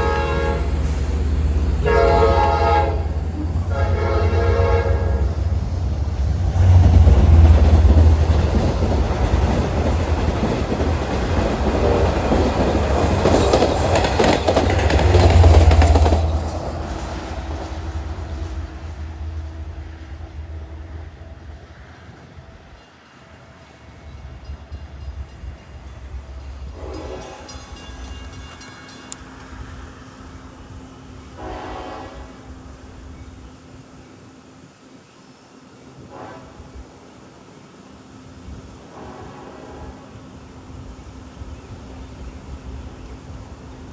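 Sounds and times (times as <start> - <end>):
train horn blasts: 0.0 - 5.8, 26.7 - 30.1, 31.3 - 32.7, 36.0 - 37.0, 38.9 - 40.2
diesel train rumbling past: 0.0 - 43.9
train wheel clatter: 5.4 - 20.3.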